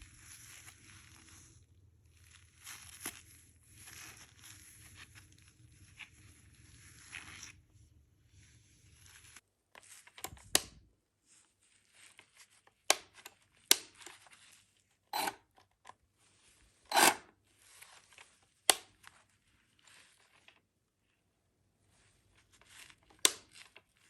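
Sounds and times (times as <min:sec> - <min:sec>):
packaging rustling and tearing: 0:00.0 - 0:07.6.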